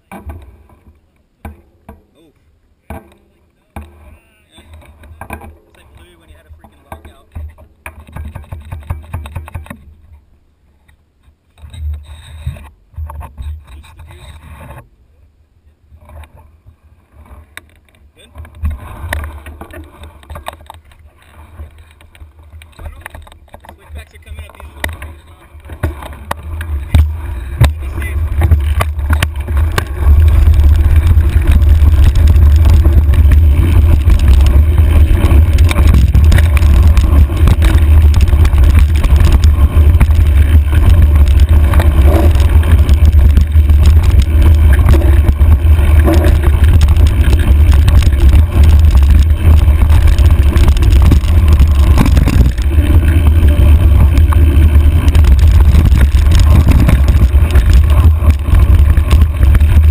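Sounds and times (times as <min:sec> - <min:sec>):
bike rattling over rough ground: 0:02.9 - 0:10.2, 0:16.0 - 0:59.9
wind buffeting microphone: 0:24.0 - 0:59.9.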